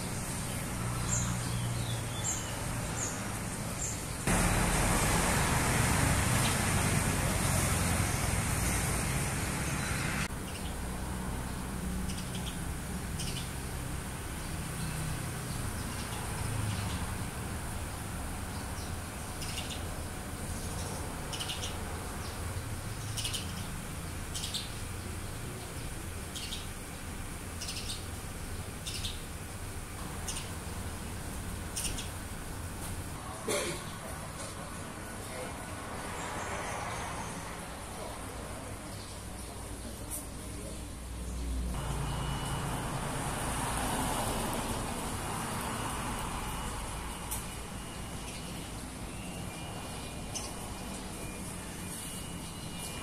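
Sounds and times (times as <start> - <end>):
even rushing noise: 4.3 - 10.3
small birds alarm chirps: 7.5 - 32.8, 43.8 - 53.0.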